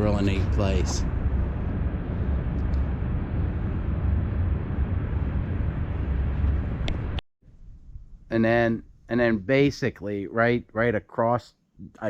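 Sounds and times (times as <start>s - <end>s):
steady outdoor rumble: 0.0s - 9.4s.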